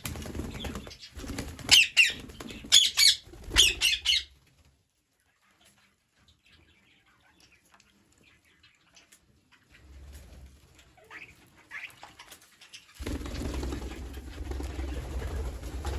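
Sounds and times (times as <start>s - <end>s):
parrots squawking harshly: 2.8s - 4.3s.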